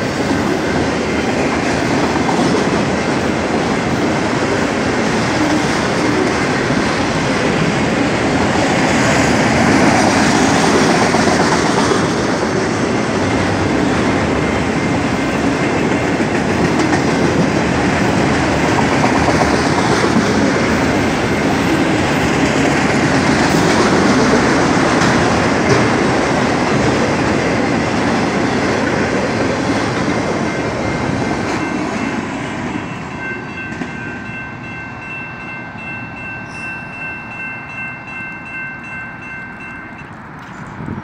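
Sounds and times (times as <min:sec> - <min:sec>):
crossing warning bell ringing: 0:00.0 - 0:12.2, 0:12.9 - 0:40.9
train wheel clatter: 0:00.0 - 0:34.3.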